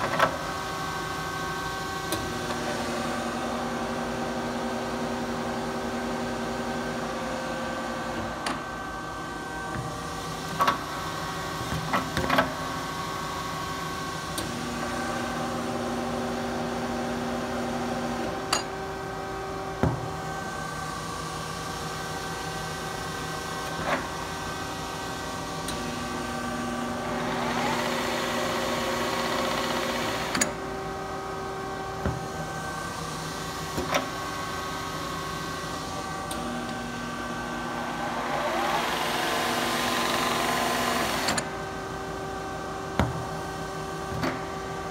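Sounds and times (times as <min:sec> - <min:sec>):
milling machine gear whine: 0:26.8 - 0:30.4, 0:36.1 - 0:41.4.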